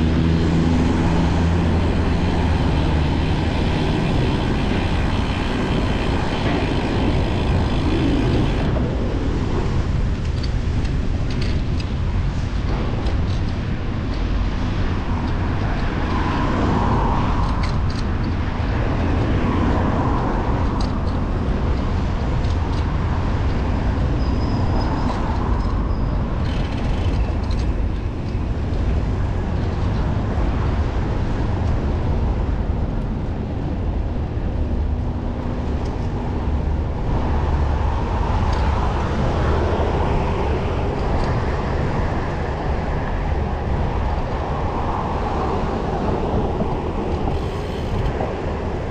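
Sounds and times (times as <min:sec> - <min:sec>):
passing car traffic: 0:00.0 - 0:48.9
wind rumble on microphone: 0:00.0 - 0:48.9.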